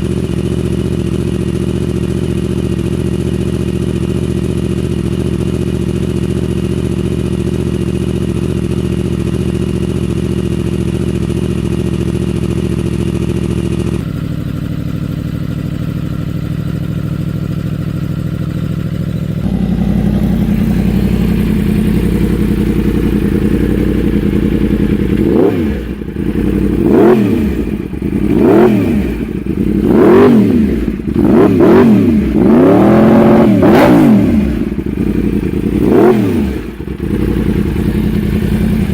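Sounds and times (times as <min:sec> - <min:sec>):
motorcycle engine idling: 0:00.0 - 0:38.9
motorcycle throttle blips: 0:16.0 - 0:38.9.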